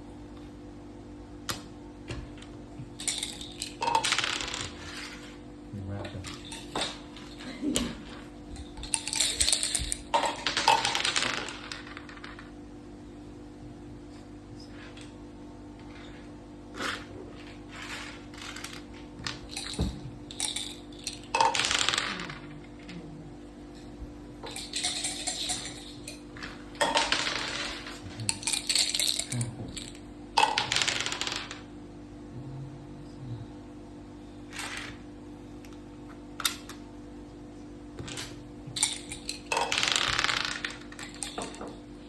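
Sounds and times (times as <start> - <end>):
dice clattering on a board: 2.4 - 5.3, 6.2 - 12.5, 16.8 - 22.9, 24.5 - 31.7, 34.5 - 35.0, 38.0 - 41.8
game pieces clacking: 3.0 - 5.3, 6.2 - 12.5, 17.7 - 23.0, 24.4 - 31.7, 38.0 - 41.7.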